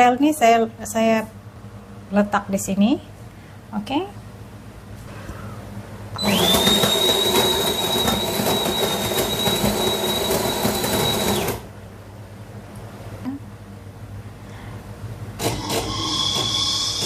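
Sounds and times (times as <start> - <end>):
coffee machine whining: 6.2 - 11.7, 15.4 - 17.0.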